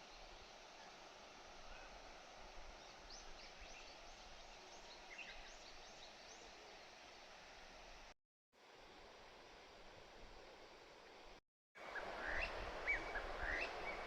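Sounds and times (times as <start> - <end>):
faint hiss: 0.0 - 14.0.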